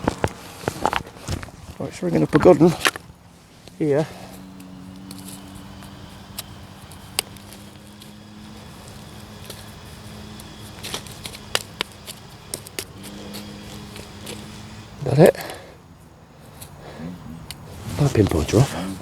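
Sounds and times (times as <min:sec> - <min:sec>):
digging scrapes in soil: 0:00.0 - 0:15.7, 0:16.4 - 0:19.0
sharp clicks: 0:02.3 - 0:15.7.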